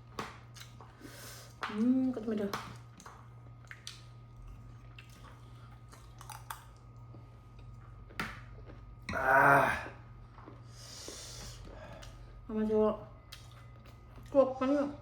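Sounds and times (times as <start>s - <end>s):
chewing crisp snacks: 2.8s - 9.0s, 13.2s - 14.4s.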